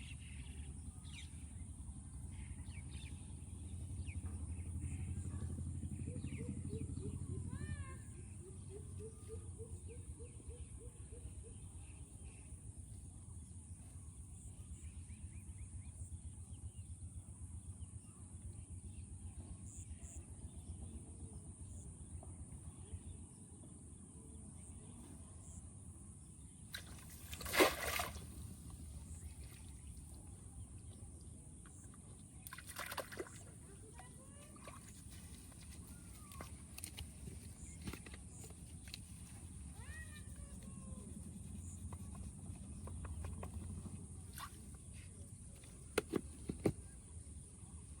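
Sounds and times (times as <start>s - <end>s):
water sloshing: 26.7s - 30.2s, 31.6s - 40.1s.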